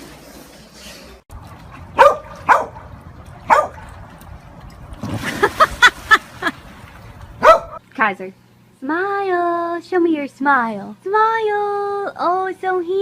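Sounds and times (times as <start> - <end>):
dog barking: 2.0 - 2.9, 3.5 - 3.8, 7.4 - 7.8.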